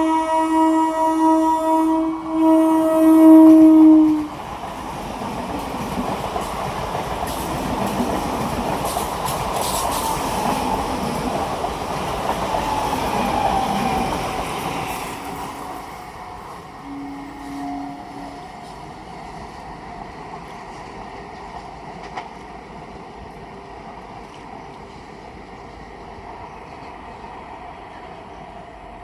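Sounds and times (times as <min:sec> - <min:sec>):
train horn: 0:00.0 - 0:04.4, 0:12.6 - 0:19.1
train rumble and wheel clatter: 0:00.0 - 0:29.0.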